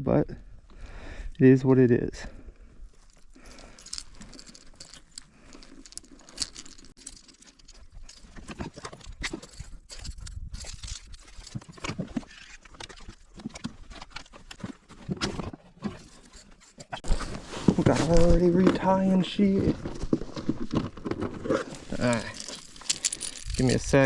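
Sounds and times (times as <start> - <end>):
fishing gear clicking: 3.0 - 14.7, 21.5 - 24.0.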